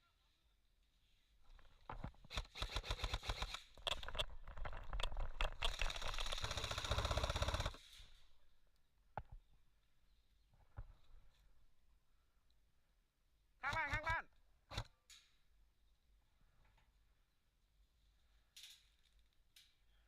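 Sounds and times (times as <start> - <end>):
airsoft gun full-auto firing: 2.3 - 4.0, 5.6 - 7.9.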